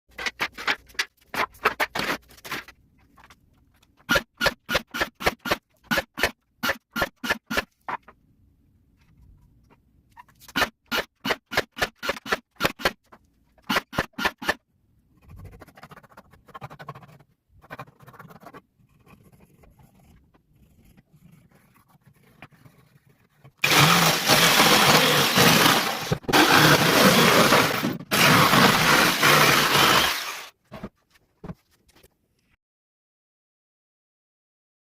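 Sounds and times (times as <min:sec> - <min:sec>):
loud power tool: 0:23.6 - 0:30.5.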